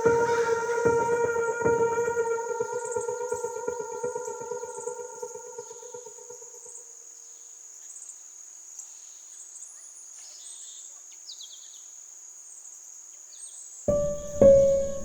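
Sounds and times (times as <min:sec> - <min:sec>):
music: 0:00.0 - 0:06.5, 0:13.9 - 0:15.0.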